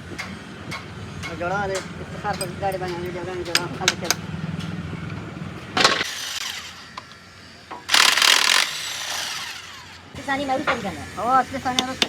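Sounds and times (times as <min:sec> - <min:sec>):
harsh power tool bursts: 0:06.0 - 0:11.7.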